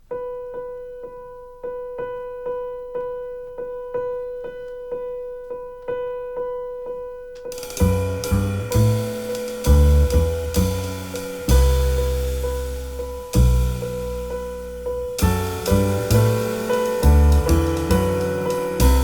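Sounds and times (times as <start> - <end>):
jazz trio playing: 7.5 - 19.0
piano repeating one note: 7.5 - 19.0
cymbal crash: 15.2 - 19.0.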